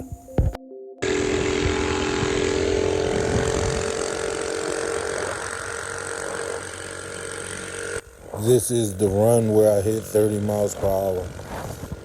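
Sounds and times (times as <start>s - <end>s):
mini bike engine running: 1.0s - 12.0s.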